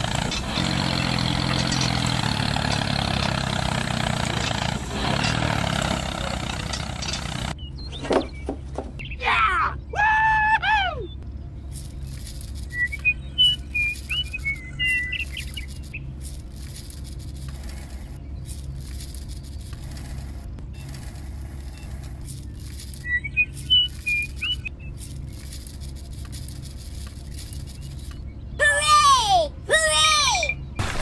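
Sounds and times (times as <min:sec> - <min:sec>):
small birds chirping and whistling: 0:00.0 - 0:28.8, 0:29.5 - 0:30.8
steady low hum: 0:09.8 - 0:28.7.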